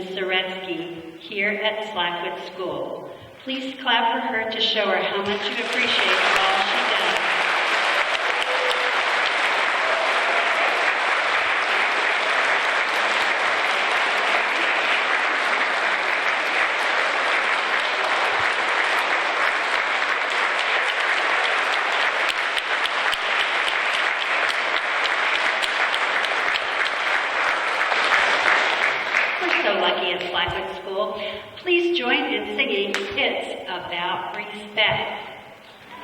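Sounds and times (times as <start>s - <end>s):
children applauding in a hall: 5.2s - 30.6s.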